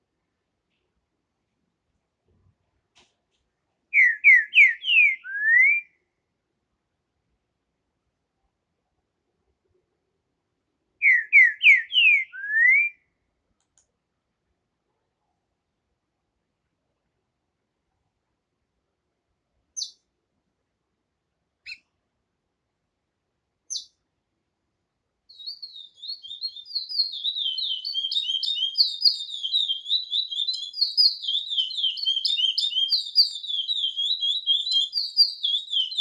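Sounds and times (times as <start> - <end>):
songbird singing: 3.9 - 6.1, 11.0 - 13.0, 19.8 - 20.1, 21.6 - 21.9, 23.6 - 24.0, 25.3 - 36.0.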